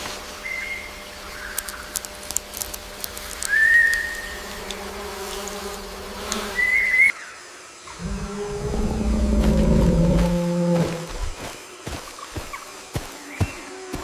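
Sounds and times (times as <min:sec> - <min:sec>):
faint steady hum: 0:07.7 - 0:13.7.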